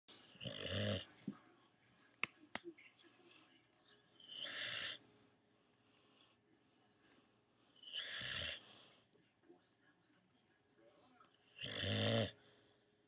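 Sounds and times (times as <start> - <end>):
dog snoring: 0.3 - 1.2, 4.2 - 5.0, 7.8 - 8.7, 11.5 - 12.4.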